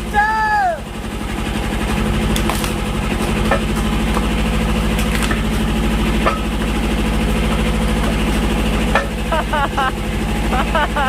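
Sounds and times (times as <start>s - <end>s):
tractor engine running: 0.0s - 11.0s
sharp knocks or cracks: 2.3s - 5.6s.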